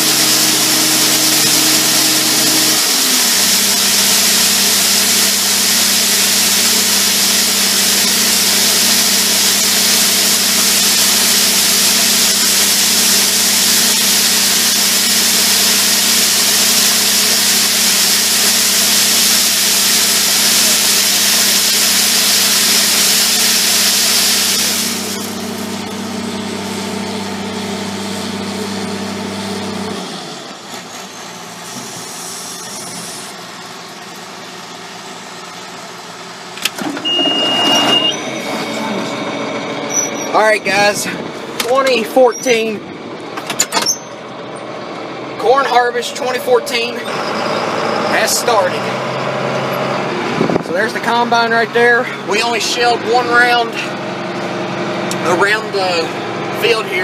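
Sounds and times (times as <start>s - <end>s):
loud rushing hiss: 0.0s - 25.8s
farm machinery engine running: 0.0s - 57.0s.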